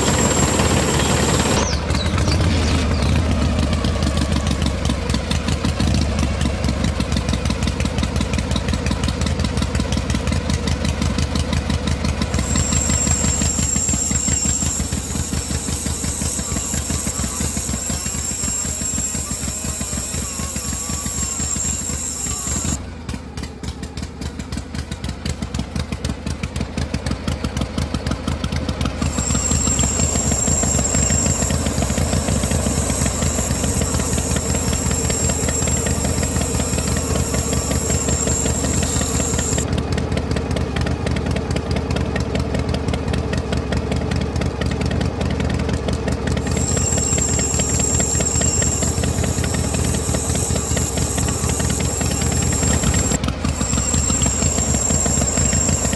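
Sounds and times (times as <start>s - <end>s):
high whine: 0.0s - 6.7s, 12.3s - 22.8s, 29.0s - 39.7s, 46.3s - 55.9s
small electric motor rattling: 0.0s - 22.8s, 29.0s - 39.7s, 45.5s - 55.9s.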